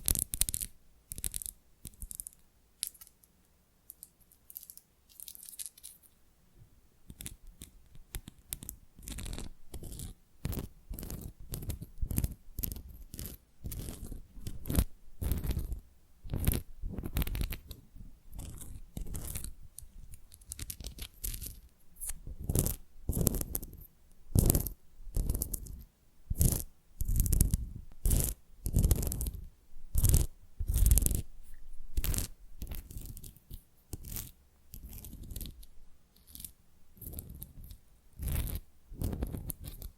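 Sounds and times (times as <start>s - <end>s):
fingernails scratching tile: 8.2s - 23.8s, 24.4s - 31.2s, 32.0s - 39.9s.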